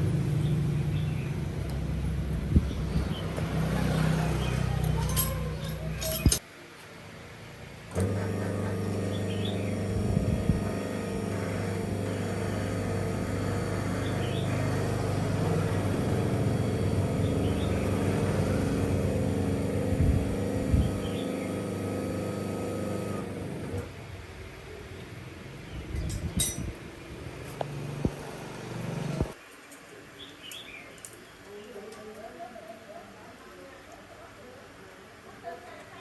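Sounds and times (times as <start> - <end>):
knocks and clicks: 5.0 - 6.4
motor humming: 7.9 - 23.9, 27.6 - 29.4.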